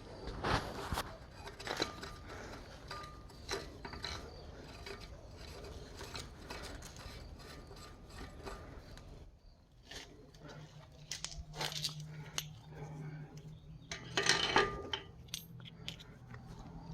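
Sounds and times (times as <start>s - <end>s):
hand tool ratcheting metal: 1.4s - 9.0s.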